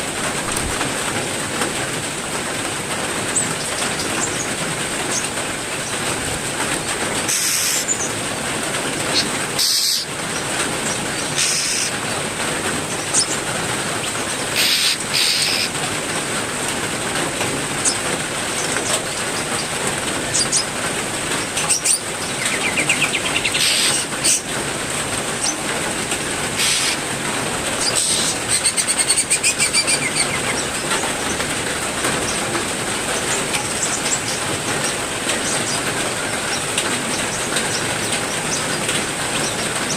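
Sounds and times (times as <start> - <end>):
heavy rain falling: 0.0 - 39.9
rapid buzzy bird call: 7.3 - 8.1, 9.1 - 10.1, 11.2 - 12.0, 14.6 - 15.8, 21.7 - 24.5, 26.6 - 27.0, 27.8 - 30.8
bird trill: 9.6 - 10.1, 27.8 - 30.7.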